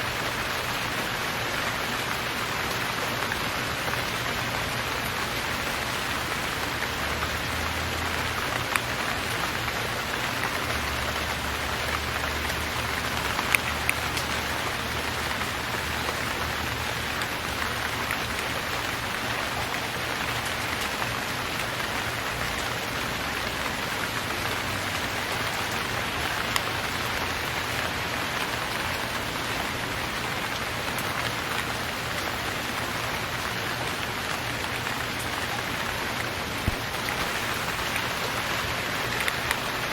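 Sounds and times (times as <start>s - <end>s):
rain falling: 0.0s - 39.9s
single rain drops ticking: 6.2s - 22.7s.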